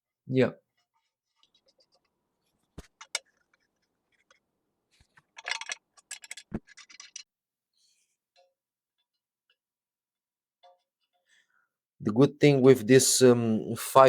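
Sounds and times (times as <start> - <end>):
tools clicking and scraping: 2.8 - 7.3.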